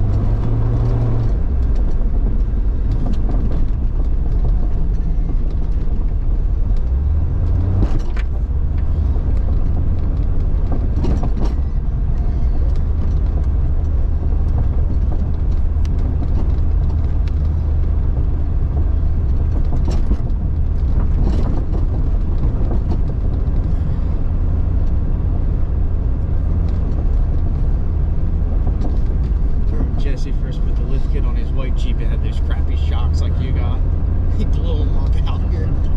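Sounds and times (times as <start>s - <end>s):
body and suspension rattles: 0.0s - 35.9s
engine low rumble: 0.0s - 35.9s.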